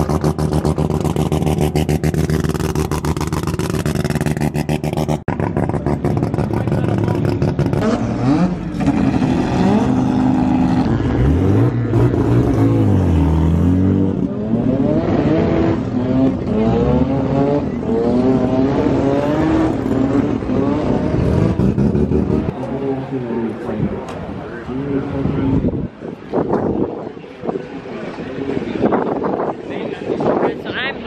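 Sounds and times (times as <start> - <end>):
race car engines revving: 0.0 - 31.0.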